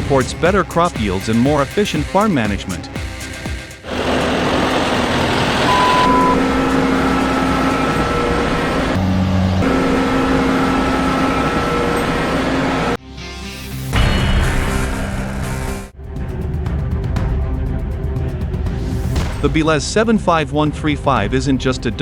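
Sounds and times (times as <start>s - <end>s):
large vehicle engine running: 3.0s - 13.0s.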